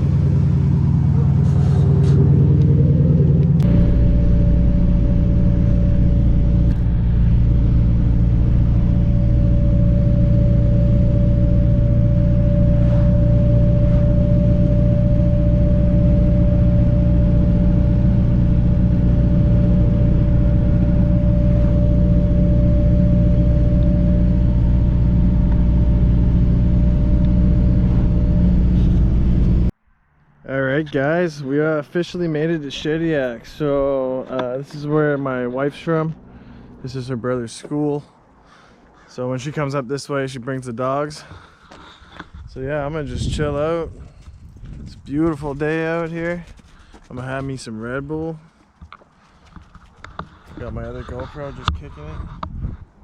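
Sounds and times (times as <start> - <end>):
car engine cruising: 0.0 - 39.2
thin steady whine: 0.0 - 46.9.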